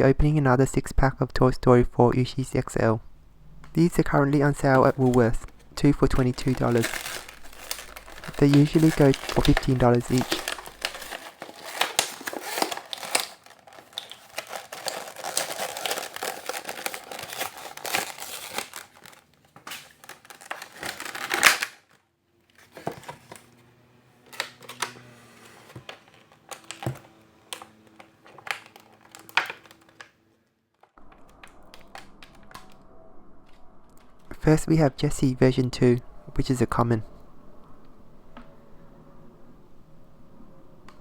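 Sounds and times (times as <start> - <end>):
plastic wrapping crinkling: 4.3 - 22.0, 25.7 - 30.2
packaging ripping: 4.7 - 22.0, 24.3 - 30.2.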